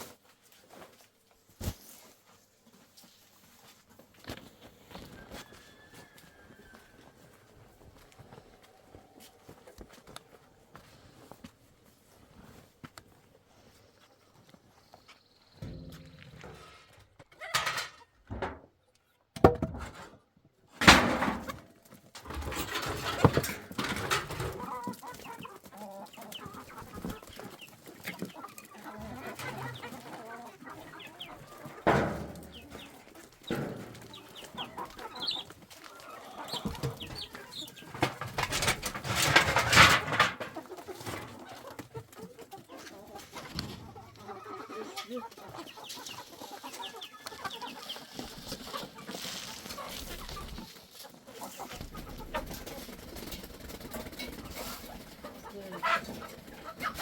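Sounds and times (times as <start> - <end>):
chickens clucking: 0.0 - 57.0
rustling or clattering noise: 15.6 - 18.7, 20.8 - 25.5, 31.0 - 42.2, 46.2 - 55.4.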